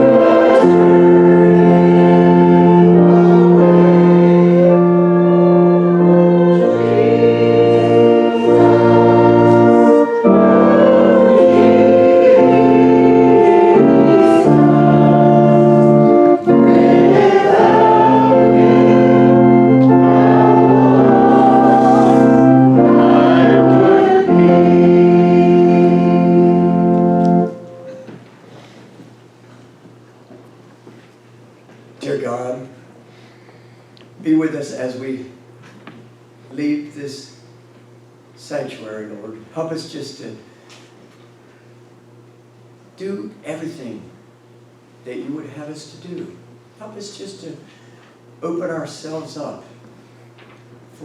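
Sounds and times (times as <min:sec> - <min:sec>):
choir singing a hymn: 0:00.0 - 0:28.1
organ chords: 0:00.0 - 0:28.8.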